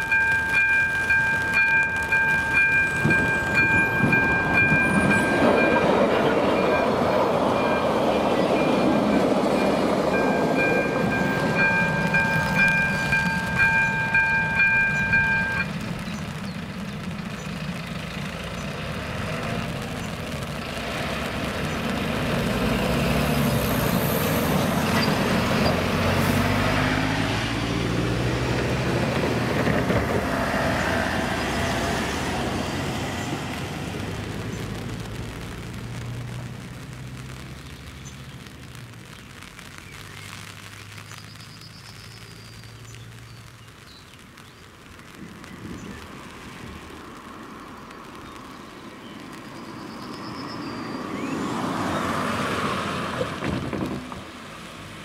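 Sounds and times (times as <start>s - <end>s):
crossing bell ringing: 0.0s - 15.8s
train rumbling past: 0.0s - 36.3s
truck engine running: 0.0s - 37.4s
cars driving across tracks: 0.0s - 55.0s.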